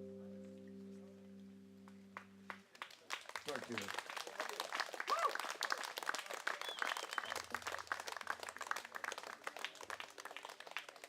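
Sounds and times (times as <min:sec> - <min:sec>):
audience clapping: 0:01.8 - 0:11.0
short cheer: 0:05.0 - 0:05.6.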